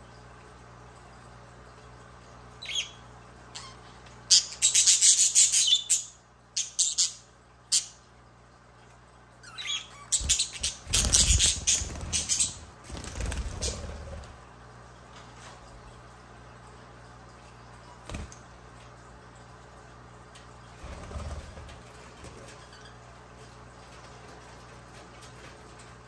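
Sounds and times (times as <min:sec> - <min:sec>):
budgerigar chirping and chattering: 0:09.5 - 0:12.6.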